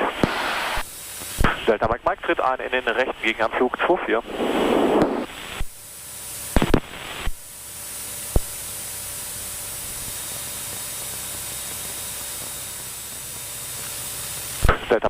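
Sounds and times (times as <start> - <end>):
aircraft cockpit hiss: 0.0 - 15.0.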